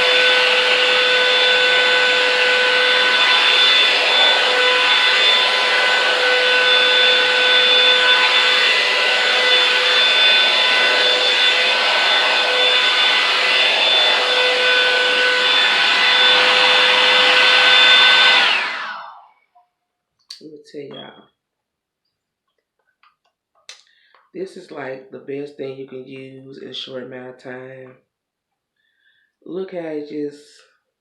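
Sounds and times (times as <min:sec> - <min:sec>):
high motor whine: 0:00.0 - 0:19.3
hair dryer brush blowing air: 0:00.0 - 0:19.4.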